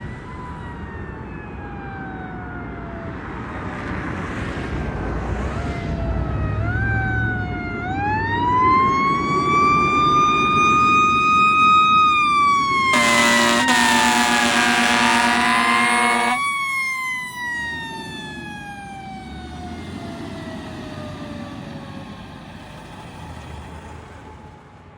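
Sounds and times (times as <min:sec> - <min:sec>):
fire truck siren wailing: 0:00.0 - 0:03.8, 0:05.6 - 0:22.5
truck engine rumble: 0:09.1 - 0:16.8
air horn blast: 0:12.9 - 0:16.4.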